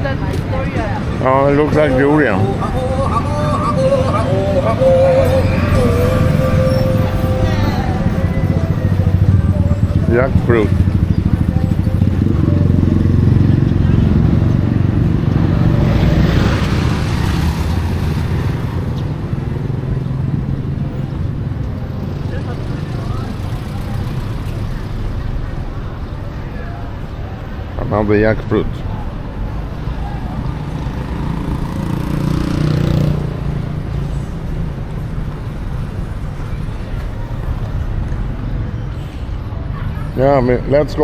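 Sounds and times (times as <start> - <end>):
motor vehicle engine running: 0.0 - 26.1
street traffic: 0.0 - 41.0.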